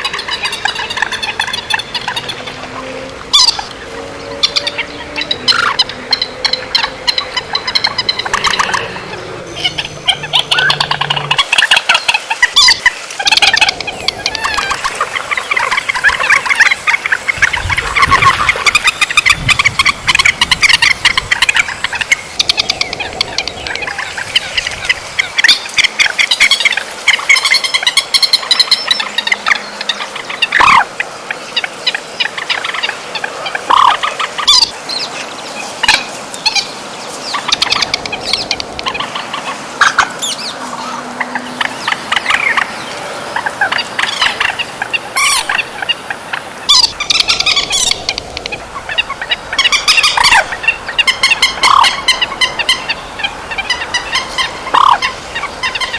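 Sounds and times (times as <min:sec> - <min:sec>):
shrill bird calls: 0:00.0 - 0:16.9, 0:35.9 - 0:48.2.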